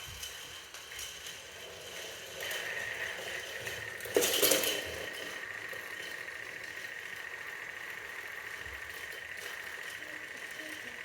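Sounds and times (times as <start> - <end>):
clinking rattle: 0.0 - 11.0
steady high whine: 0.7 - 11.0.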